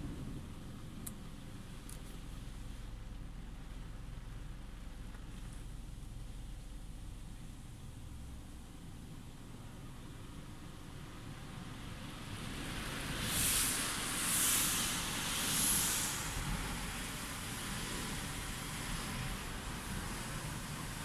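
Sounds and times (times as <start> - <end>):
car wash machine rumbling: 0.0 - 21.0
loud hissing surges: 12.0 - 21.0.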